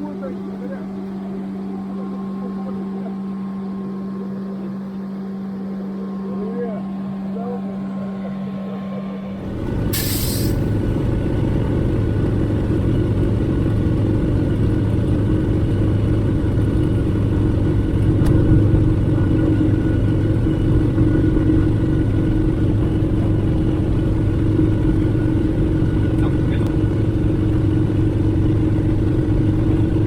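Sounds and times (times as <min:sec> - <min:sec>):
radial piston engine rumble: 0:00.0 - 0:30.0
short hiss: 0:09.9 - 0:10.7.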